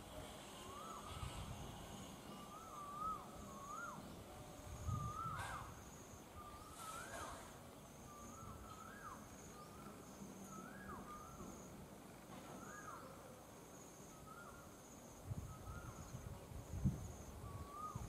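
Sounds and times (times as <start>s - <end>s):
bird whistled call: 0.6s - 1.5s, 2.2s - 11.8s, 12.5s - 13.2s, 14.1s - 14.8s, 15.4s - 16.3s, 17.3s - 18.0s.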